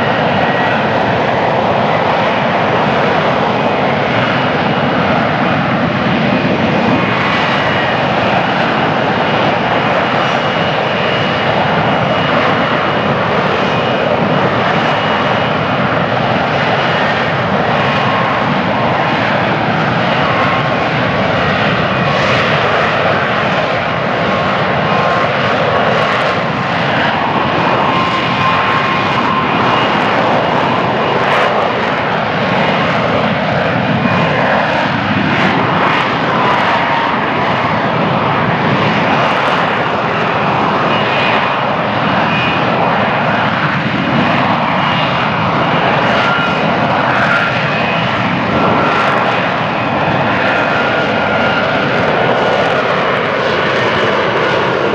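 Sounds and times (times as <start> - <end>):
jet engine hovering: 0.0 - 54.9.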